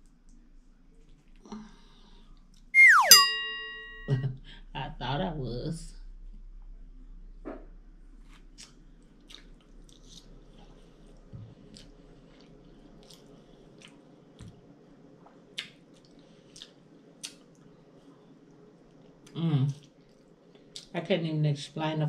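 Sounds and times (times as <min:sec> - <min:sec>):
person chewing with closed lips: 0:08.3 - 0:14.1, 0:15.2 - 0:17.7.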